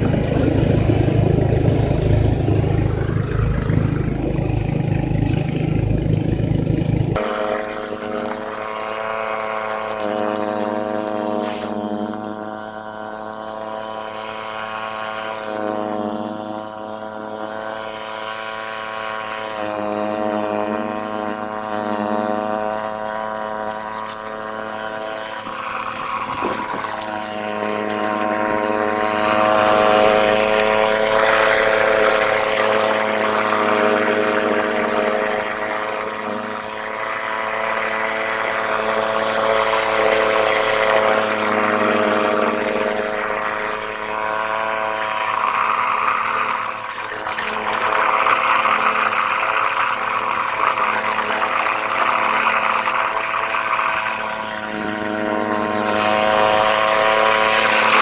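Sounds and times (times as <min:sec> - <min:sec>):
snowblower engine running: 0:00.0 - 0:58.0.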